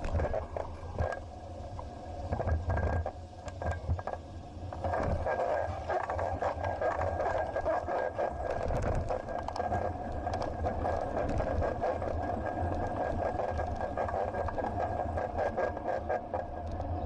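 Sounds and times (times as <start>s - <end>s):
thin whine: 0.0s - 17.0s
wind: 0.0s - 17.0s
bike rattles and clicks: 2.3s - 17.0s.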